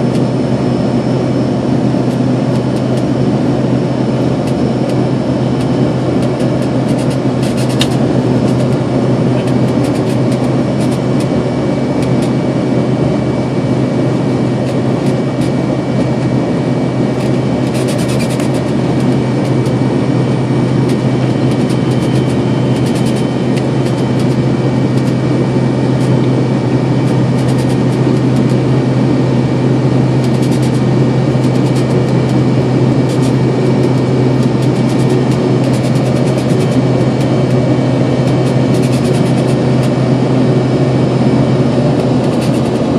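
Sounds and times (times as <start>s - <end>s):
jet engines roaring in cabin: 0.0s - 42.9s.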